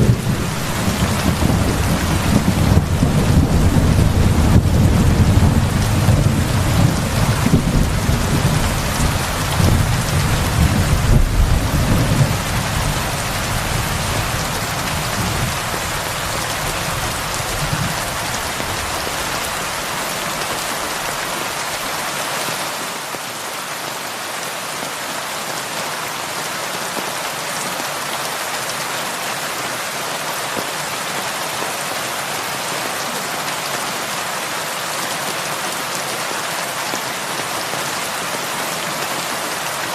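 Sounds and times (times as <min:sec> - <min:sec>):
thunder rumbling: 0:00.0 - 0:19.7
heavy rain falling: 0:00.0 - 0:39.9.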